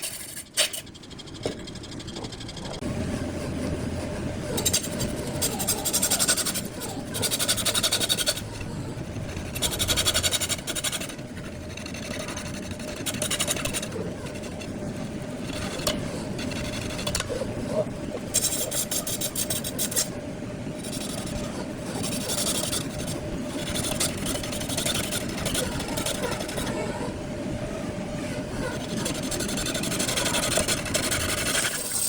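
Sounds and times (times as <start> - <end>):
turning tool scraping wood: 28.6 - 32.0.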